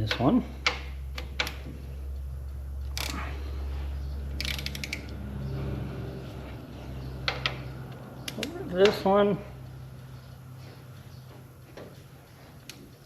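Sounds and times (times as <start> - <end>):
hand ratchet clicking: 0.0 - 3.3, 4.2 - 5.3.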